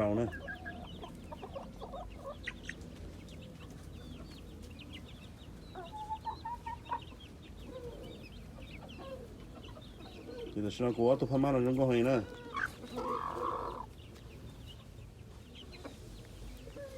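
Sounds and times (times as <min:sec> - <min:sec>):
chickens clucking: 0:00.0 - 0:16.9.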